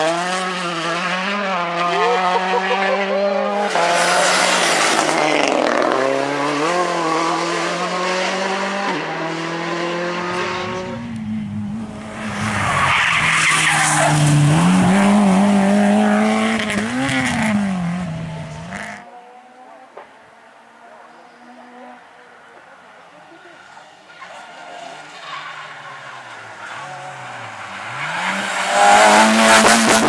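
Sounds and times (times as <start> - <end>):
rally car engine revving: 0.0 - 19.4, 24.2 - 30.0.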